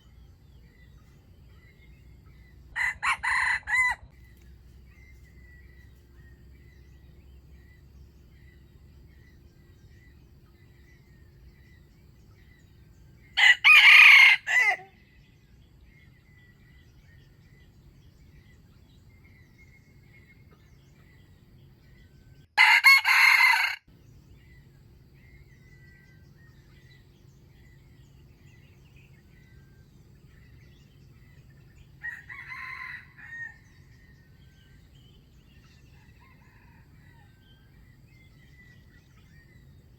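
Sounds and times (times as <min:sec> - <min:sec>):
rooster crowing: 0:02.7 - 0:04.2, 0:13.4 - 0:15.0, 0:22.6 - 0:23.9, 0:32.0 - 0:34.1, 0:35.9 - 0:37.8.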